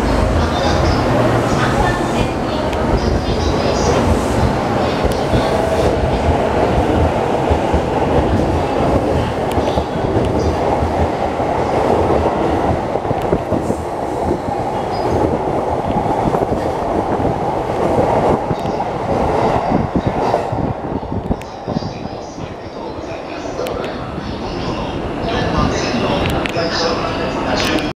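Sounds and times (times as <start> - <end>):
train wheels rumbling on rail: 0.0 - 27.9.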